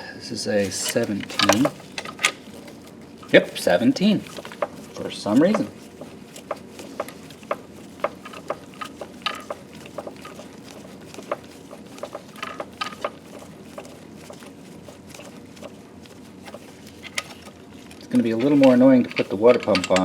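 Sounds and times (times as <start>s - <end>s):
steady low hum: 0.0s - 20.0s
metal tools clinking: 0.7s - 2.7s, 18.1s - 20.0s.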